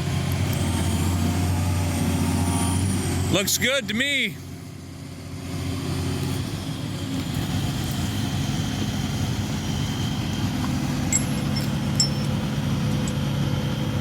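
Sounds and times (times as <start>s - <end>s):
excavator diesel engine idling: 0.0s - 2.2s, 3.3s - 14.0s
metallic clinks: 11.0s - 12.4s.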